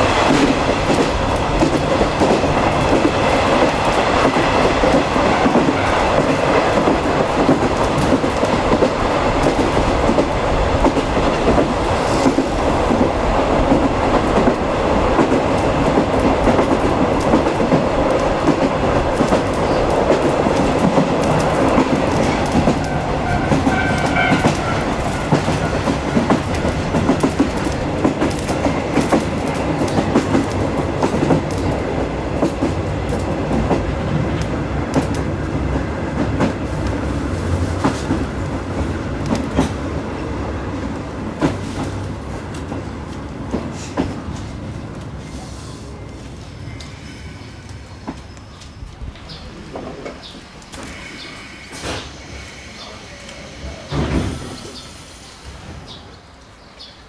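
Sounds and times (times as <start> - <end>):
train running rumble: 0.0 - 56.2
wheels clicking over rail joints: 0.2 - 37.0.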